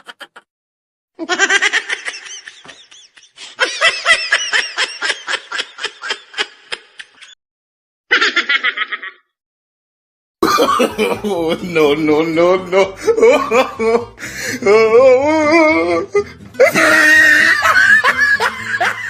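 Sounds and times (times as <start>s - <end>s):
rapid high-pitched laughter: 0.0s - 0.5s, 8.1s - 9.3s, 16.6s - 19.0s.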